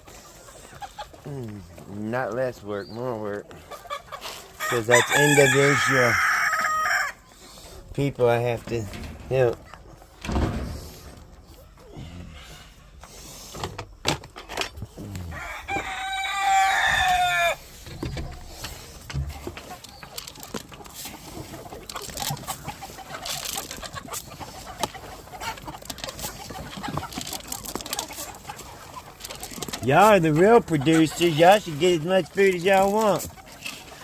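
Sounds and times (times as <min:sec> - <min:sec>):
hens clucking: 0:00.0 - 0:34.0
rooster crowing: 0:04.6 - 0:07.2, 0:15.3 - 0:17.6
light knocks and rattles: 0:07.9 - 0:11.3.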